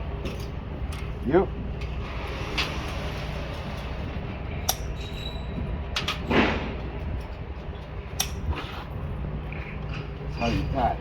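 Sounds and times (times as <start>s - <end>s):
steady low rumble: 5.6s - 11.0s.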